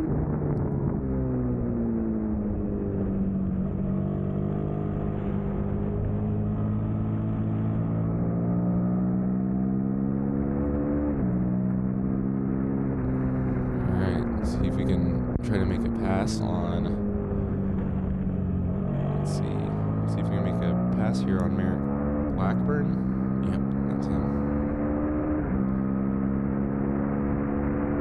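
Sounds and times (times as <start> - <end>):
motorcycle engine running hard: 1.8 - 28.0.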